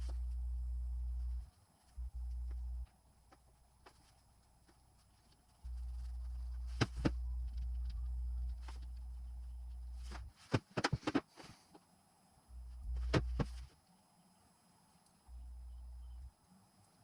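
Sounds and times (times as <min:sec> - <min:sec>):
low rumble: 0:00.0 - 0:02.9, 0:05.6 - 0:10.3.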